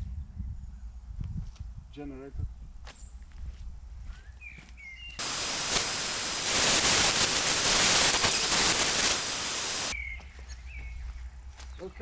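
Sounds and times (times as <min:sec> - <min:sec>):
loud steady hissing: 0:05.2 - 0:10.0.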